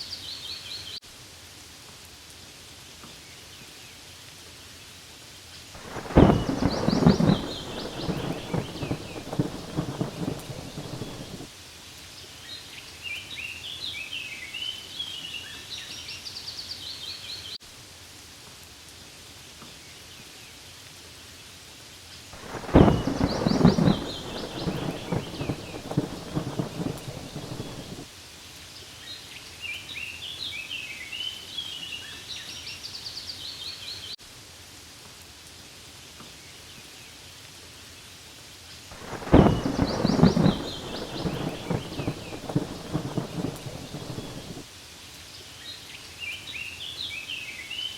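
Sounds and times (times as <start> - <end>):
rain falling on leaves: 0.0 - 47.9
rolling thunder: 5.8 - 11.5, 22.4 - 28.1, 39.0 - 44.6
high chirping calls: 22.4 - 28.0, 39.0 - 44.6.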